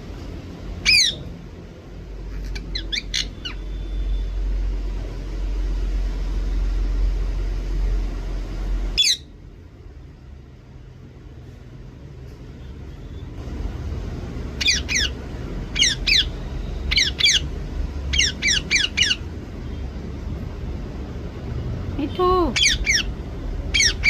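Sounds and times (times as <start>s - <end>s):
parrot squawking: 0.8s - 1.3s, 2.4s - 3.7s, 9.0s - 9.3s, 14.5s - 19.4s, 22.4s - 24.0s.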